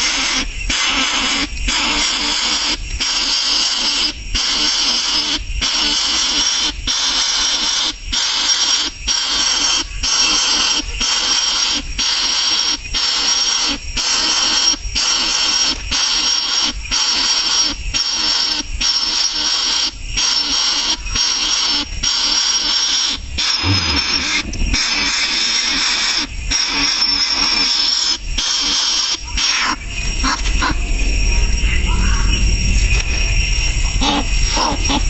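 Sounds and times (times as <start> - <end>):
nestling bird begging calls: 34.0 - 35.0.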